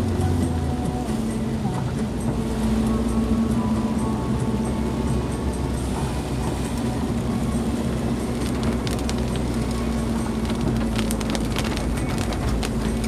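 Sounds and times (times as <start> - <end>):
car engine and road drone: 0.0 - 13.0
sharp ticks: 6.7 - 13.0.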